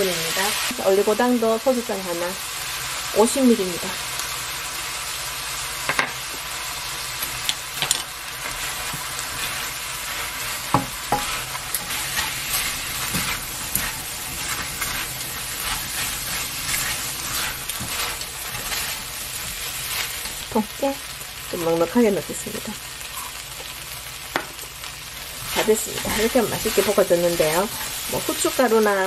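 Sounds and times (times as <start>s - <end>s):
crabs sizzling in hot oil: 0.0s - 29.0s
spatula scraping and knocking pan: 7.8s - 20.5s, 25.3s - 28.8s.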